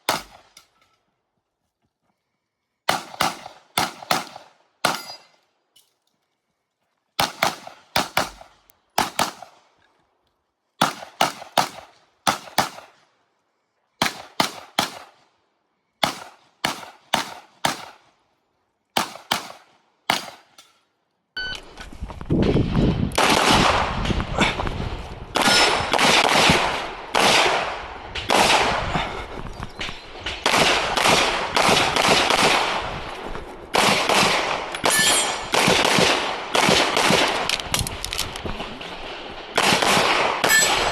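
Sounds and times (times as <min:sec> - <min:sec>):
pistol shots: 0:00.0 - 0:00.6, 0:02.9 - 0:05.3, 0:07.2 - 0:09.6, 0:10.8 - 0:13.0, 0:14.0 - 0:15.2, 0:16.0 - 0:18.1, 0:19.0 - 0:20.7, 0:25.4 - 0:28.9, 0:30.2 - 0:32.9, 0:33.7 - 0:37.6, 0:38.8 - 0:40.9.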